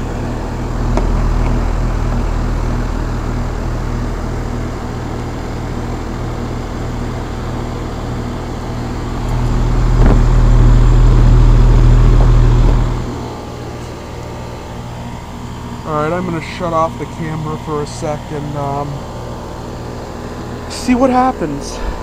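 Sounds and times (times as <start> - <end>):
heat pump compressor and fan hum: 0.0 - 22.0
deep rumble: 0.3 - 5.4, 8.6 - 13.7, 21.6 - 22.0.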